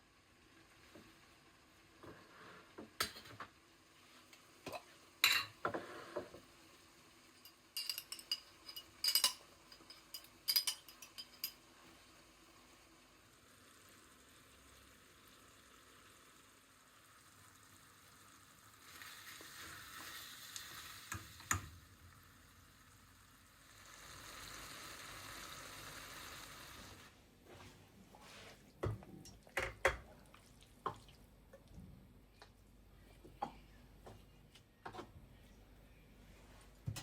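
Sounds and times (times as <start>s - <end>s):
soft hiss: 0.0s - 37.0s
utensils and dishes clinking: 7.4s - 11.6s.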